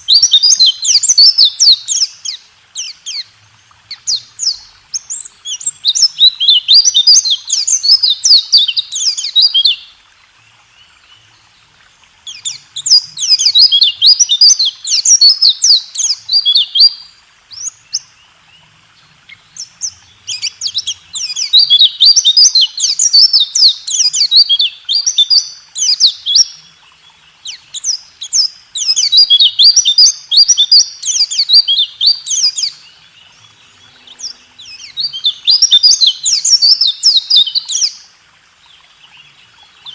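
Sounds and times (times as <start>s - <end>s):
bird singing rapid high chirps: 0.0s - 3.3s, 3.9s - 9.9s, 12.2s - 18.1s, 19.3s - 26.6s, 27.4s - 38.1s.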